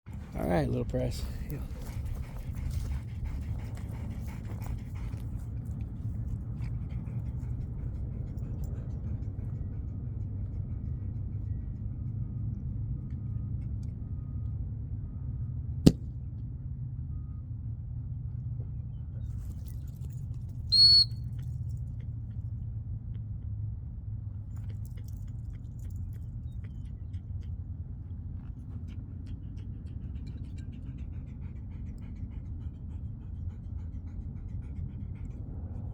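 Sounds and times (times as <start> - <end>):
dog-training whistle blast: 20.7 - 21.2.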